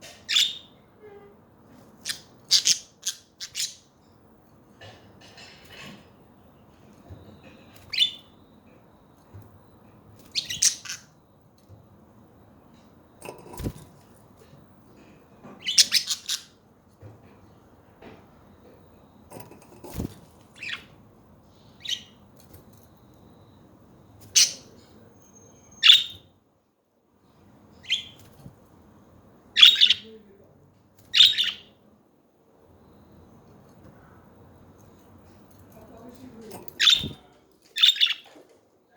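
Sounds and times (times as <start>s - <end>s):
budgerigars chirping and squawking: 2.0s - 3.8s, 10.3s - 11.1s, 15.6s - 16.6s, 25.8s - 26.2s, 29.6s - 30.1s, 31.2s - 31.7s, 36.8s - 37.2s, 37.8s - 38.2s.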